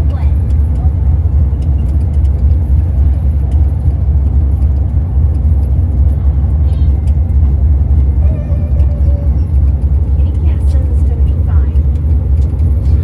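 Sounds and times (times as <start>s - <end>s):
tram rumbling: 0.0s - 13.0s.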